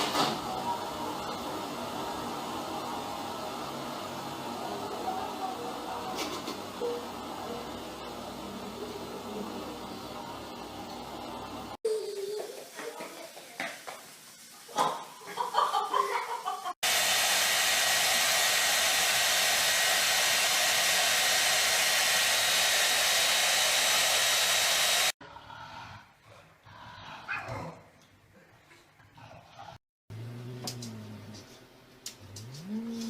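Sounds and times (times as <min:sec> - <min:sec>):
rushing air with high whine: 0:16.8 - 0:25.2.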